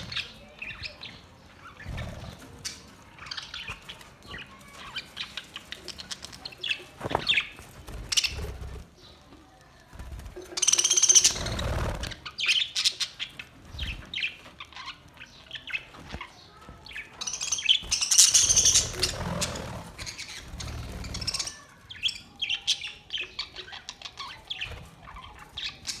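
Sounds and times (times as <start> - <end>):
budgerigars chirping: 10.6 - 15.9, 17.2 - 26.0
rustling: 13.3 - 21.9.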